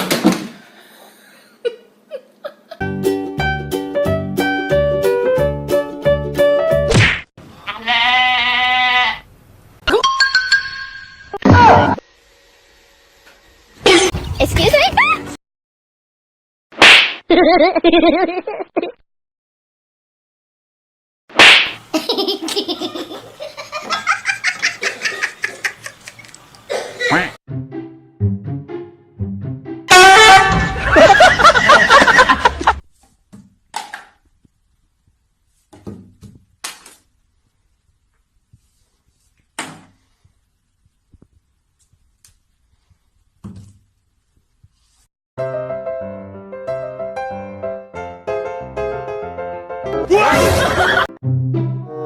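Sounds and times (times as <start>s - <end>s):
person laughing hard: 1.6s - 2.8s, 17.3s - 19.0s, 30.5s - 32.8s, 50.2s - 51.1s
piano music: 2.8s - 6.9s, 27.5s - 30.0s, 45.4s - 50.1s, 50.7s - 52.0s.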